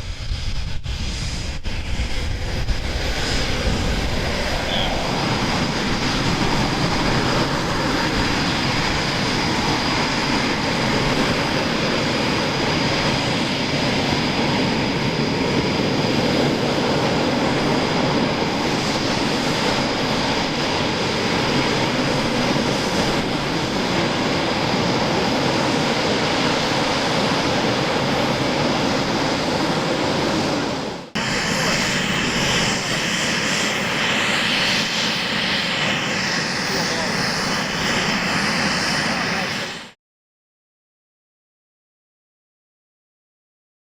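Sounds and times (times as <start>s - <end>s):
jet engines roaring with whine: 0.0s - 40.0s.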